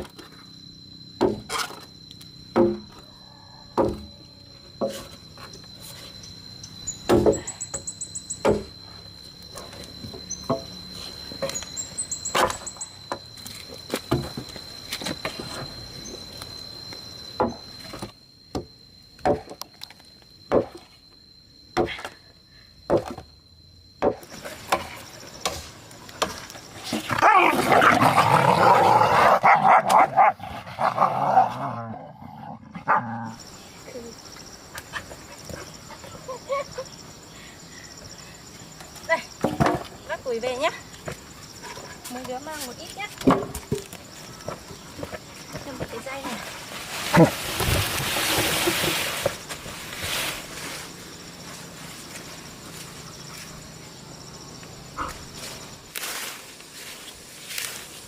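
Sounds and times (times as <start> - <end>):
firewood being chopped: 1.2 - 1.5, 2.5 - 2.9
dogs barking loudly: 27.2 - 31.2.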